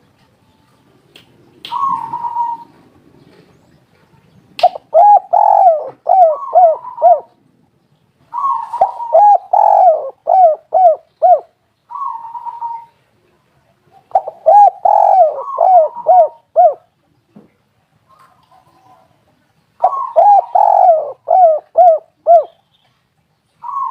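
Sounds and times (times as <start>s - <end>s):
dove cooing: 1.7s - 3.5s, 4.6s - 7.4s, 8.3s - 13.0s, 13.9s - 16.9s, 19.8s - 22.6s, 23.6s - 23.9s.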